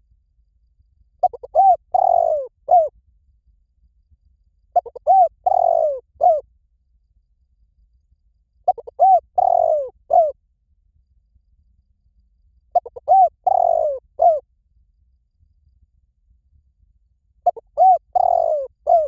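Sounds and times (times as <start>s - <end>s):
dove cooing: 1.2s - 2.9s, 4.8s - 6.4s, 8.7s - 10.4s, 12.7s - 14.4s, 17.4s - 19.0s.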